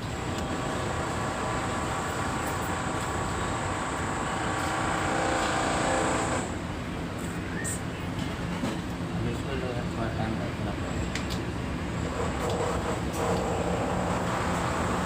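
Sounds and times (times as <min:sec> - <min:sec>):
machine humming with high whine: 0:00.0 - 0:07.6.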